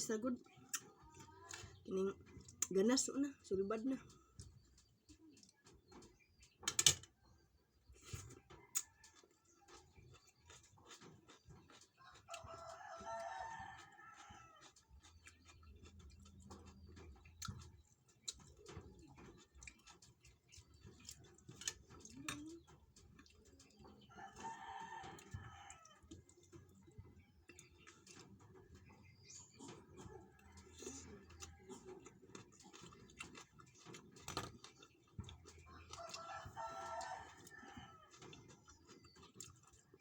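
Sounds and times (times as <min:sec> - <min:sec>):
rooster crowing: 0:36.0 - 0:38.1.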